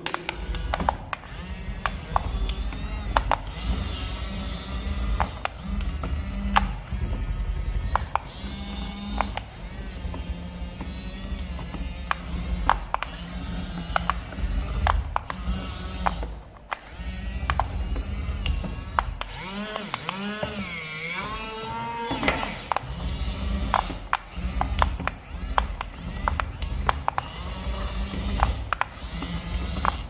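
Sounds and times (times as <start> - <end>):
sharp clicks: 0.0 - 30.0
toy car motor whirring: 0.0 - 30.0.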